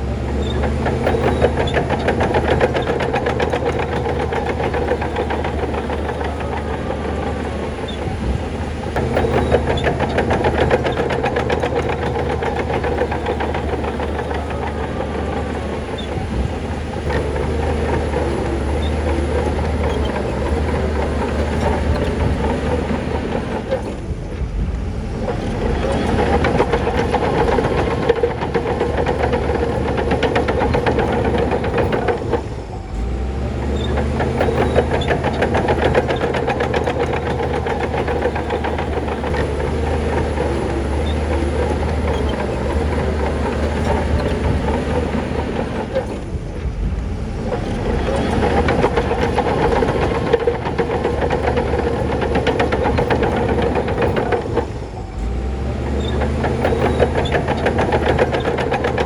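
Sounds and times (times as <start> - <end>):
diesel engine under load: 0.0 - 59.0
steel tracks clattering: 0.0 - 59.0.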